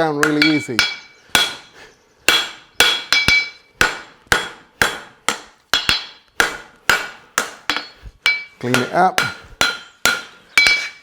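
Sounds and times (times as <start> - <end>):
hammer striking horseshoe on anvil: 0.2 - 1.7, 2.3 - 11.0.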